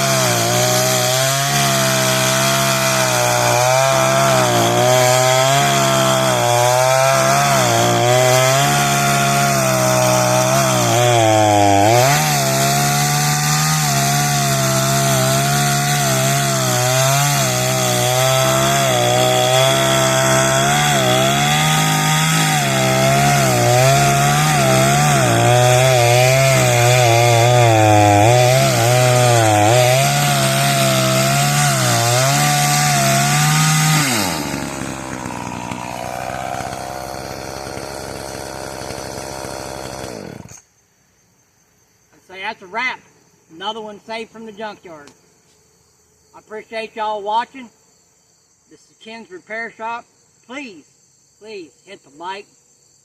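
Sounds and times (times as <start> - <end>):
chainsaw engine running: 0.0 - 40.6.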